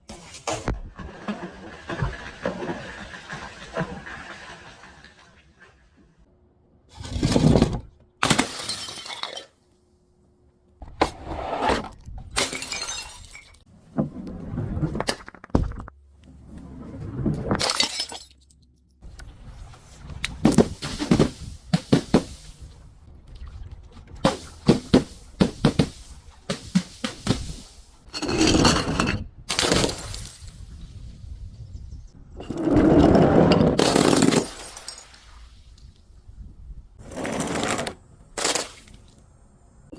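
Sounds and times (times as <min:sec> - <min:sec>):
glass bottles shattering: 0:08.2 - 0:09.6, 0:12.4 - 0:13.6, 0:17.6 - 0:18.6, 0:28.2 - 0:30.8, 0:33.7 - 0:35.2.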